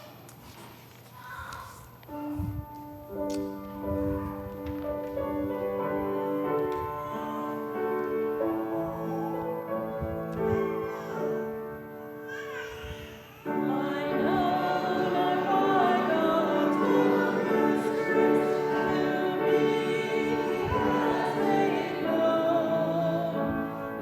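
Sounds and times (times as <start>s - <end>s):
congregation singing a hymn: 3.4s - 24.0s
keyboard playing hymn chords: 13.6s - 24.0s.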